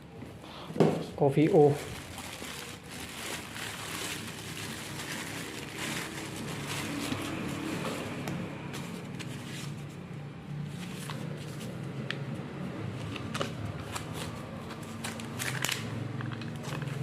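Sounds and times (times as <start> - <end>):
objects clicking and rustling: 13.1 - 17.0.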